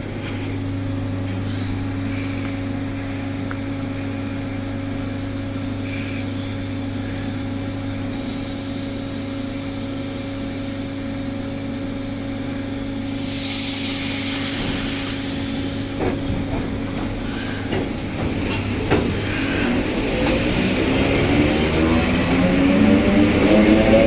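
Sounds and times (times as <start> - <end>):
electric train humming: 6.6 - 24.0
hiss: 8.1 - 10.8, 13.0 - 22.4
knocks and clatter: 13.1 - 23.9.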